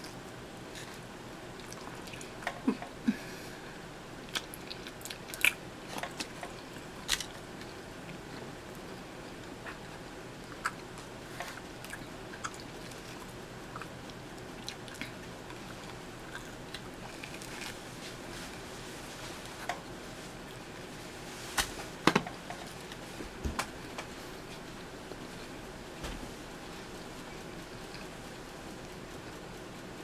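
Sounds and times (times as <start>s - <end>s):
chewing pizza crust: 0.0s - 3.0s, 4.2s - 21.3s, 26.6s - 29.8s.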